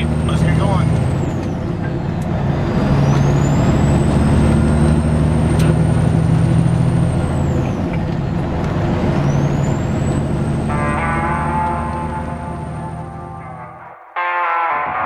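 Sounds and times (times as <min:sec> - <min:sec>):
diesel truck engine running: 0:00.0 - 0:13.8
high whine: 0:09.2 - 0:15.0.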